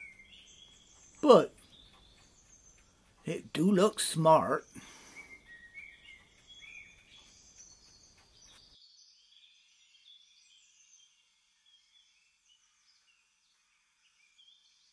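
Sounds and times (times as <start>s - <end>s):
small birds chirping: 0.0s - 14.9s.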